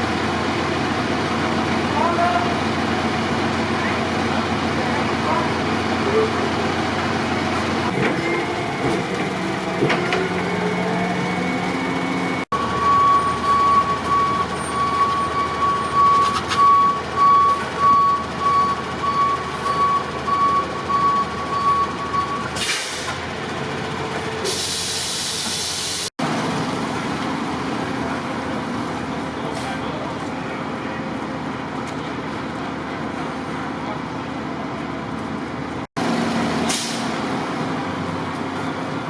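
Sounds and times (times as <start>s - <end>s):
fire truck idling: 0.0s - 39.0s
reversing alarm beeping: 10.2s - 22.5s
air brakes hissing: 22.5s - 23.2s, 24.4s - 26.1s, 36.6s - 37.2s.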